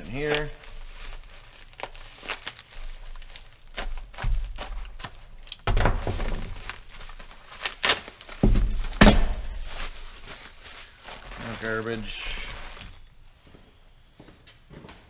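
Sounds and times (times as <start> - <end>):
crinkling plastic: 0.0 - 13.1
dull thuds: 8.4 - 9.7.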